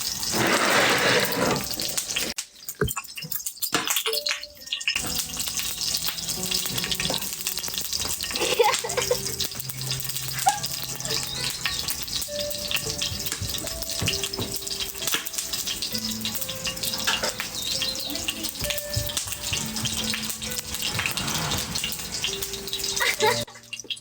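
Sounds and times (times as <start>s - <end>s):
meat sizzling in hot oil: 0.0s - 24.0s.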